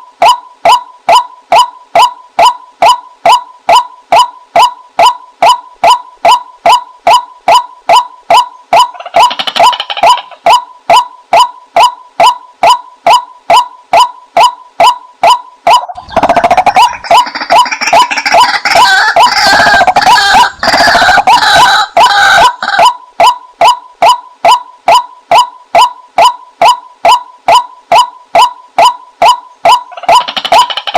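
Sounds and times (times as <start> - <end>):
waterhen calling repeated note: 0.2 - 30.9
harsh bird chattering: 15.8 - 22.8, 29.9 - 30.9.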